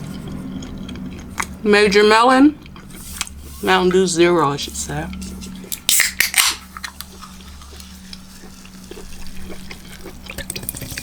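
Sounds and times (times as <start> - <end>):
bubbles crackling: 6.6 - 11.0.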